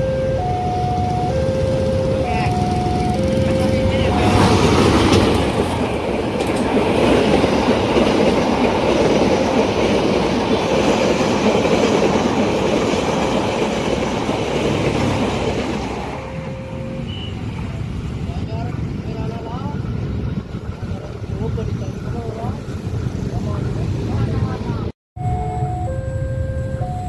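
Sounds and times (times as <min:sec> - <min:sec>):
train wheels rushing on rails: 0:00.4 - 0:24.9.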